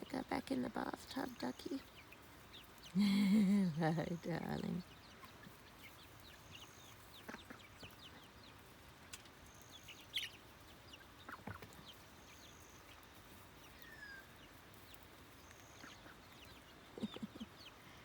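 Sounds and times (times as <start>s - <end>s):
chicks peeping and clucking: 0.0s - 18.0s.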